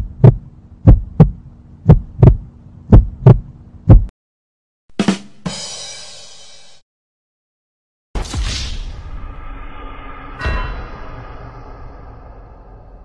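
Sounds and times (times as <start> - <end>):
heartbeat thumps: 0.0 - 4.1
cymbal crash: 8.2 - 13.0
drum hit: 10.2 - 13.0.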